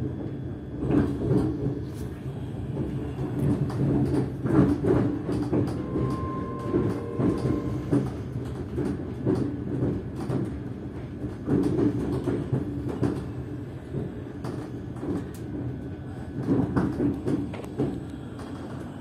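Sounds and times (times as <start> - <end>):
thin high tone: 5.8 - 8.0.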